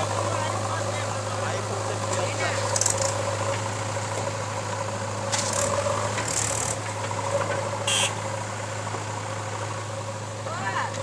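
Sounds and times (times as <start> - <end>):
diesel machinery engine running: 0.0 - 11.0.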